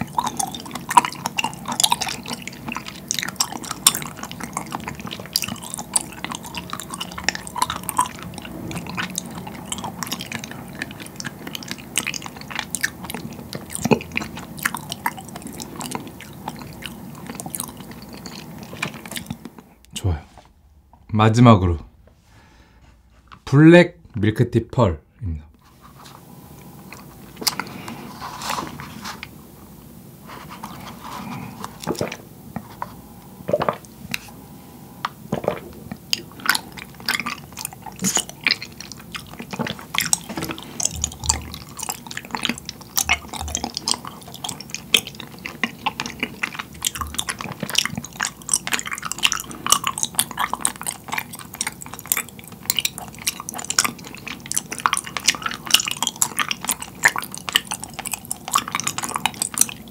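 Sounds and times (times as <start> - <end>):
chewing with wet clicks: 0.0 - 20.0, 26.6 - 28.0, 35.0 - 59.9.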